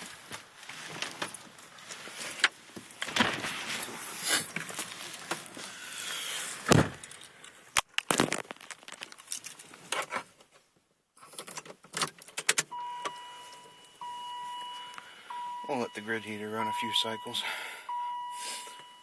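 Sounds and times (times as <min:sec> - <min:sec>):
electronic warning tone: 0:12.8 - 0:19.0.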